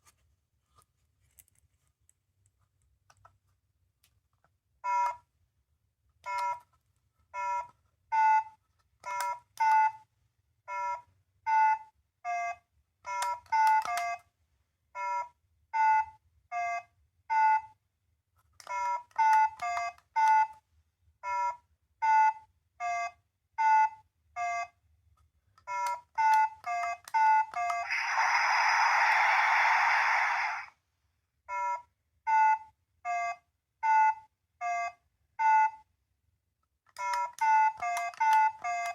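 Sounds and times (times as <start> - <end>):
electronic hissing burst: 27.8 - 30.7.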